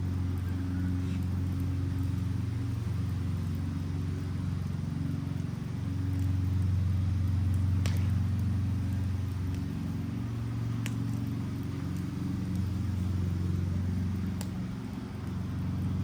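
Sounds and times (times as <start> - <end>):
fire crackles: 0.0 - 16.0
steady low hum: 0.0 - 16.0.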